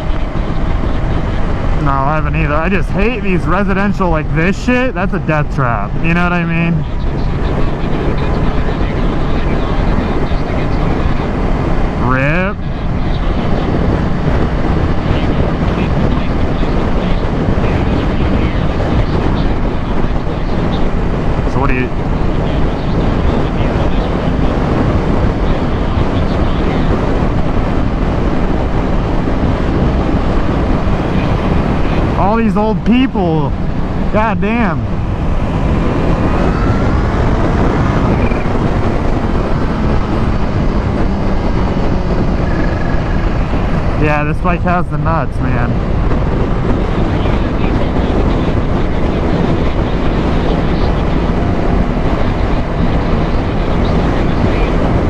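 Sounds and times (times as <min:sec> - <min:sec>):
wind rushing on microphone: 0:00.0 - 0:55.0
motorcycle engine: 0:19.5 - 0:44.8
motorcycle engine running: 0:33.5 - 0:44.0.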